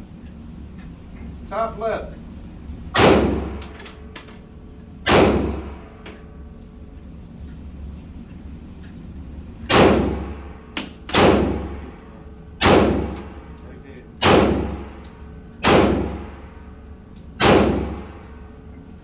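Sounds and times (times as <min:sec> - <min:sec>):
pistol shots: 0:03.0 - 0:03.8, 0:05.1 - 0:05.8, 0:09.7 - 0:12.0, 0:12.6 - 0:13.5, 0:14.2 - 0:16.4, 0:17.4 - 0:18.3.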